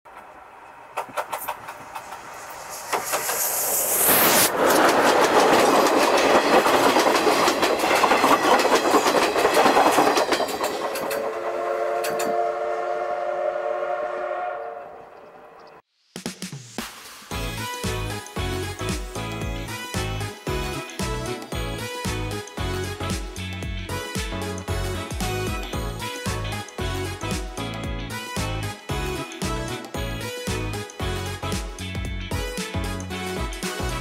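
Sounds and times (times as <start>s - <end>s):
wheels clacking over rail joints: 0.1s - 12.4s
steam train hiss: 1.2s - 13.8s.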